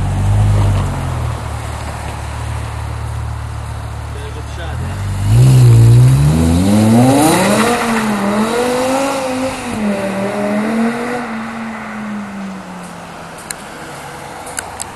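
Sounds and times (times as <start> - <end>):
car accelerating hard: 4.6 - 12.3.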